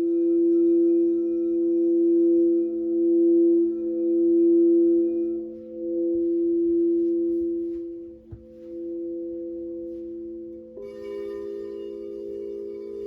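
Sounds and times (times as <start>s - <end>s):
crystal singing bowls ringing: 8.5s - 13.0s.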